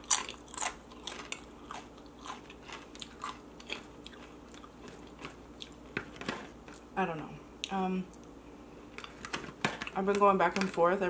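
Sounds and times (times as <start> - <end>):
chewing a tortilla chip: 0.0 - 6.0.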